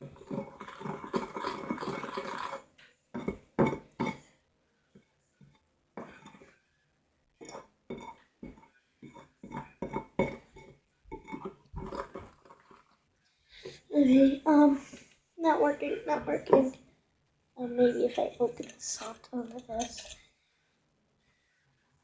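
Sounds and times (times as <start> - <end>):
utensil scraping a bowl: 0.0 - 3.4, 7.4 - 12.9.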